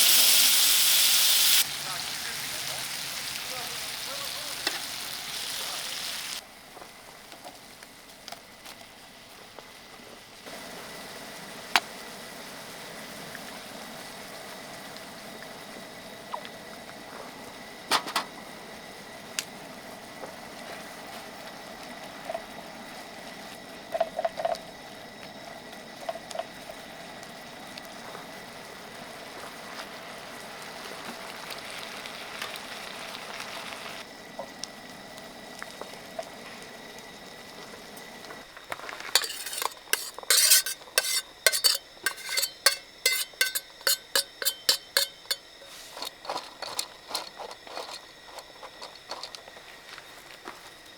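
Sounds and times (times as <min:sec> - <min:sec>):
food frying in a pan: 0:00.0 - 0:16.5, 0:18.4 - 0:50.1
fast clattering stirring: 0:39.1 - 0:49.5
utensil clinking against metal: 0:39.1 - 0:49.6.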